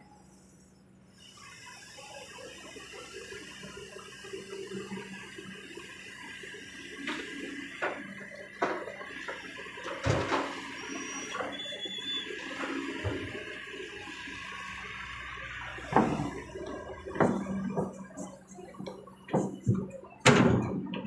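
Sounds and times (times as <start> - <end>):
excavator engine hum: 0.0 - 21.0
knocks and thuds: 15.9 - 16.4, 17.1 - 18.2.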